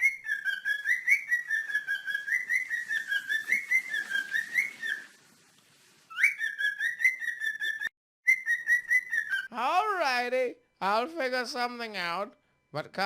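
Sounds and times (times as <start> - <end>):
cockatiels chirping and whistling: 0.0 - 5.1, 6.1 - 9.5.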